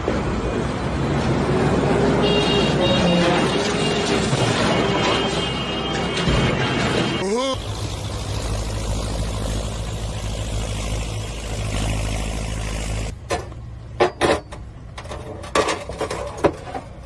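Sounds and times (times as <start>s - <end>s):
vehicle engine running: 7.3s - 13.3s.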